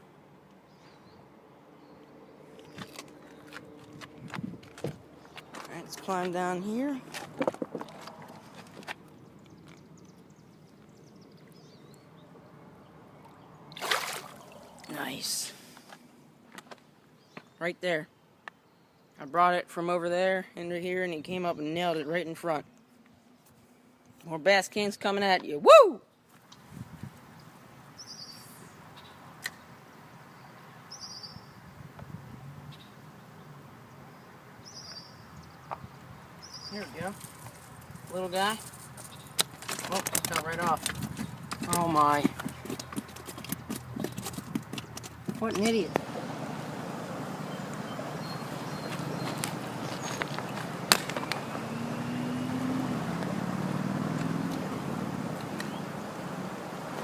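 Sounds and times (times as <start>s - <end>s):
creek water flowing: 11.4s - 15.8s, 37.0s - 57.0s.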